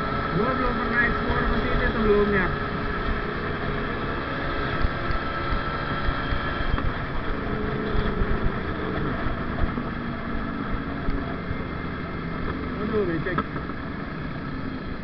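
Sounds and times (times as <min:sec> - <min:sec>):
wind rush on microphone: 0:00.0 - 0:11.8
motorcycle engine running: 0:00.0 - 0:15.0.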